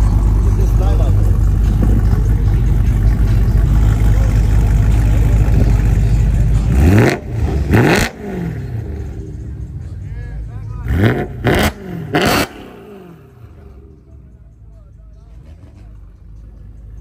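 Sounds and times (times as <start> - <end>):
engine revving: 0.0 - 9.6, 10.8 - 13.9
car engines idling: 0.0 - 17.0.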